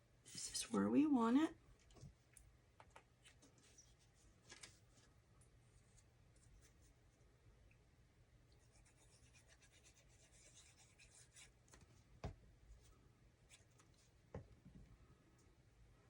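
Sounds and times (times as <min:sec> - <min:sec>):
rubbing and scratching cardstock: 0:08.6 - 0:12.0
soft taps on desk: 0:12.2 - 0:12.4.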